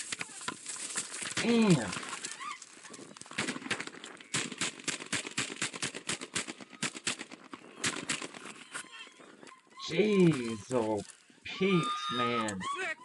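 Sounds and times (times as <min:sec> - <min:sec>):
rapid gunshots: 0:03.4 - 0:08.5.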